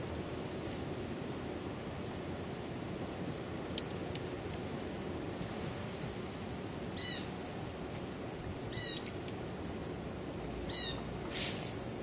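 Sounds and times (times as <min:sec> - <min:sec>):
outdoor background hiss: 0:00.0 - 0:12.0
bird calling: 0:06.9 - 0:07.4, 0:08.7 - 0:09.1, 0:10.6 - 0:11.7.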